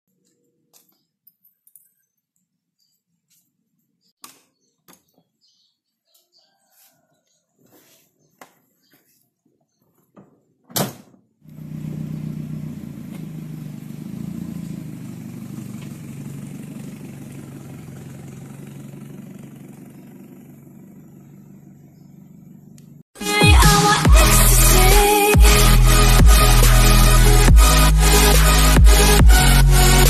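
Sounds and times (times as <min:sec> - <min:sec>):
car engine running: 0:11.5 - 0:23.0, 0:24.0 - 0:30.0.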